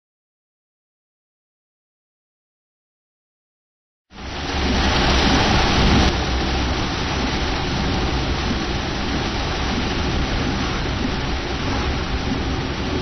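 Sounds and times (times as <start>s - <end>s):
heavy rain: 4.1s - 13.0s.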